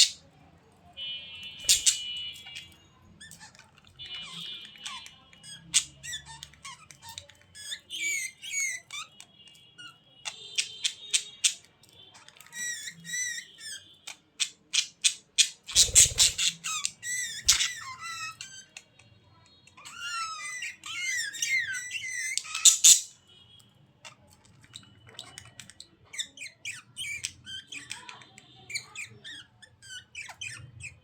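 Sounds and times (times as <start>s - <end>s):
budgerigars chattering: 0.0s - 0.2s, 1.6s - 2.6s, 14.7s - 18.3s, 20.9s - 23.1s.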